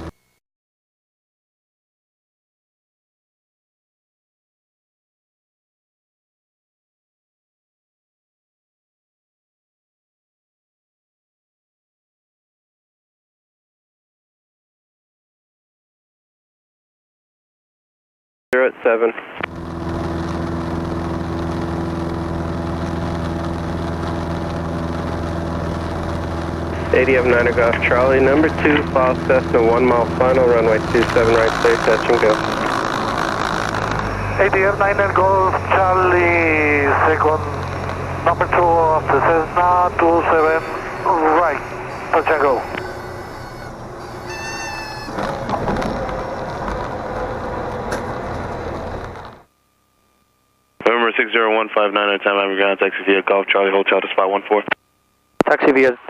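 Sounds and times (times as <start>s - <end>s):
brief steady tone: 0.0s - 0.4s, 39.0s - 45.6s
airplane engine and propeller droning: 19.4s - 49.5s.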